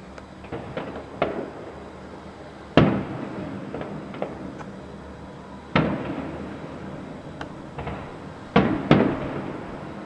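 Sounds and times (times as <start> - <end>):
fireworks bangs with echo: 0.5 - 1.8, 2.7 - 4.6, 5.7 - 7.1, 7.7 - 10.0.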